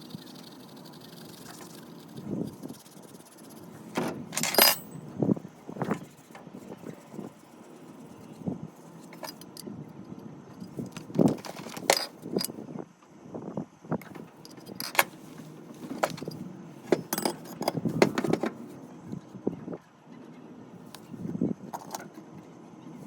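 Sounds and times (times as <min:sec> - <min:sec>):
plumbing parts and tools clinking: 0:03.9 - 0:05.1, 0:09.1 - 0:09.7, 0:10.6 - 0:12.6, 0:14.0 - 0:18.6, 0:21.8 - 0:22.1.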